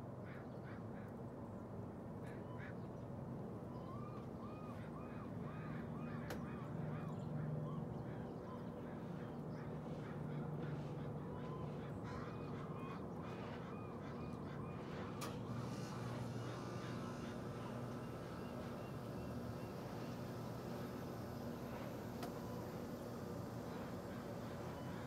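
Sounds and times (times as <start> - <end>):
low steady hum: 1.4 - 25.0.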